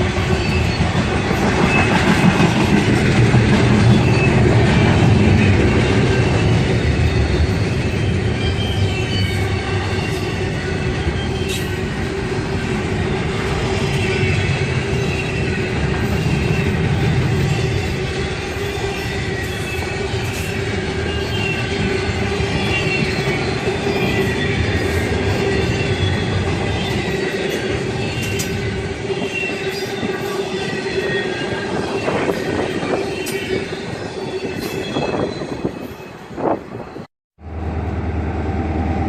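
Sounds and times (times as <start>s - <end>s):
train wheels squealing: 0.0s - 37.1s
railroad cars rumbling: 0.0s - 39.0s.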